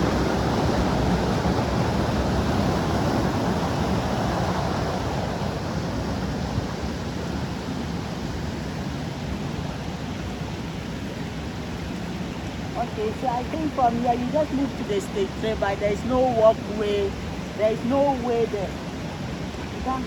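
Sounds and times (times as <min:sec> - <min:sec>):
waterfall rushing water: 0:00.0 - 0:20.0.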